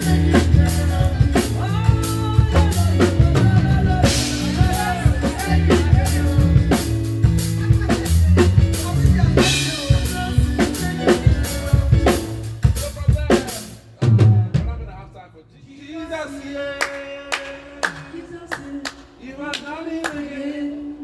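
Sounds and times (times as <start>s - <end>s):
live band playing: 0.0s - 15.2s.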